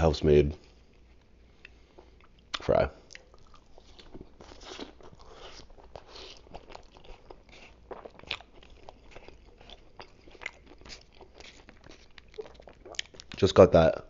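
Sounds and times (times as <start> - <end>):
chewing mouth clicks: 2.2 - 13.4.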